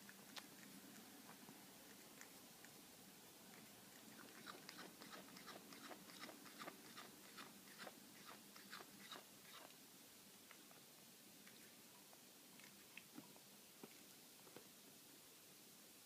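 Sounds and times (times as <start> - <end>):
cat chewing: 0.0 - 9.8, 11.4 - 14.6.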